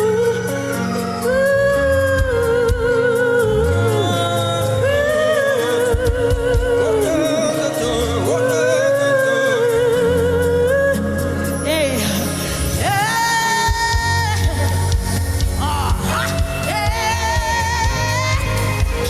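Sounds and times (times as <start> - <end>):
person singing wordless melody: 0.0 - 19.0.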